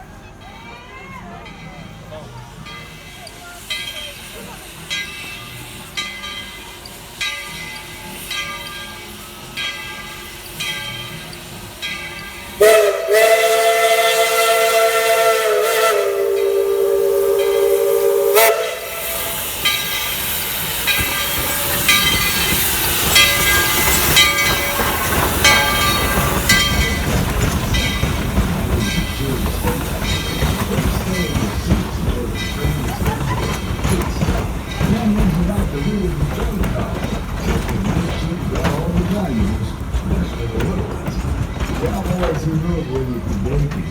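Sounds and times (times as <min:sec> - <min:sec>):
train hissing and chuffing: 0:01.5 - 0:43.9
steam locomotive whistle: 0:12.2 - 0:33.7.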